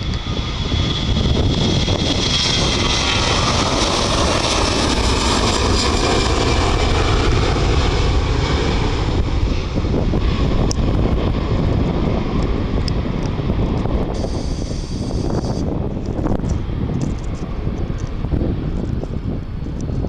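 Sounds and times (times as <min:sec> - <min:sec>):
jet airliner engines: 0:00.0 - 0:20.0
faint high whine falling: 0:14.2 - 0:15.6.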